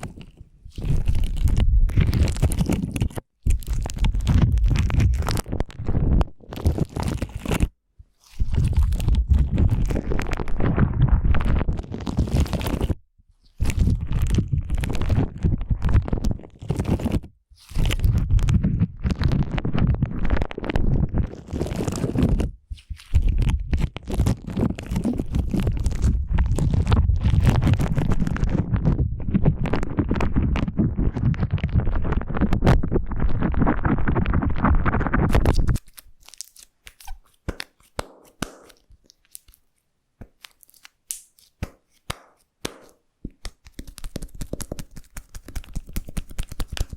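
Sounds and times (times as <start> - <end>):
slime squelching and popping: 0.0 - 46.9
faint clicks and taps: 36.9 - 46.9.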